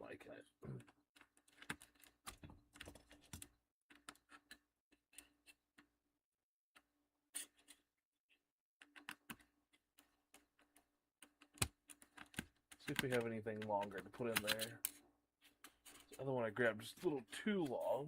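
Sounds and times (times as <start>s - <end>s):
small clicks and taps of screw: 1.2s - 5.9s, 8.8s - 15.0s.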